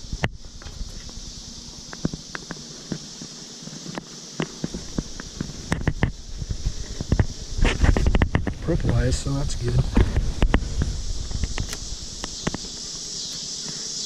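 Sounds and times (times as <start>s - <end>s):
honeybee hum: 0.0s - 14.0s
hive tool clicks and knocks: 1.9s - 6.2s, 7.0s - 9.0s, 9.9s - 12.7s.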